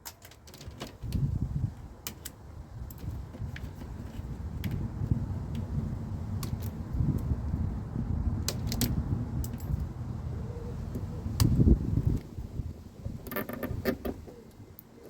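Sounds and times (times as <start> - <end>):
wiring rubbing and rustling: 0.0 - 9.9, 13.0 - 15.0.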